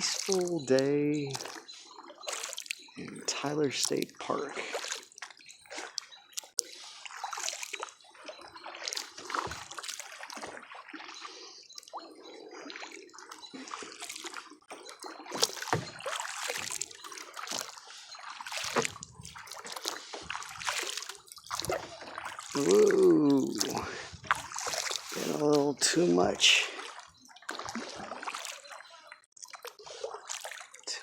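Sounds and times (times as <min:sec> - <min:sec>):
paddle splashing through water: 0:00.0 - 0:31.0.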